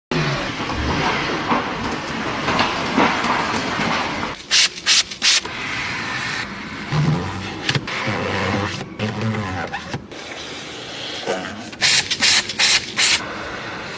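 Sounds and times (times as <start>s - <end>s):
water spray hissing on a car: 4.4s - 6.8s
loud blasts of spray: 4.4s - 6.9s, 10.4s - 13.9s.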